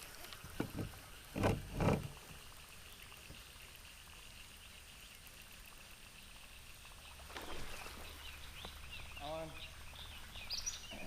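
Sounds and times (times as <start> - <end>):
river ambience: 0.0 - 11.0.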